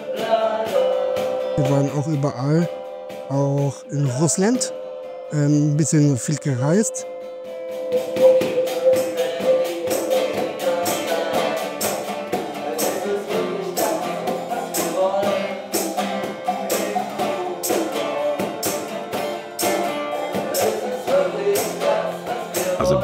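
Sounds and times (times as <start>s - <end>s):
band song with guitar: 0.0s - 23.0s
tambourine-like percussion hits: 7.7s - 23.0s.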